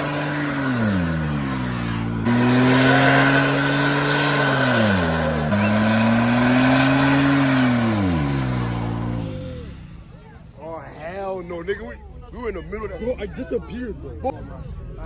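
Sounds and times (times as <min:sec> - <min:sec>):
car engine revving high: 0:00.0 - 0:10.0.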